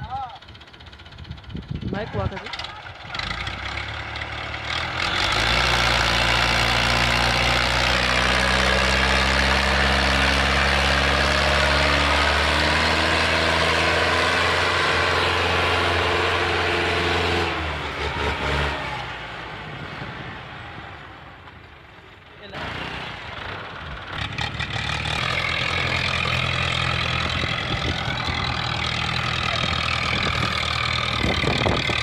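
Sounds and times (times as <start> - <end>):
tractor diesel engine revving: 0.4 - 32.0.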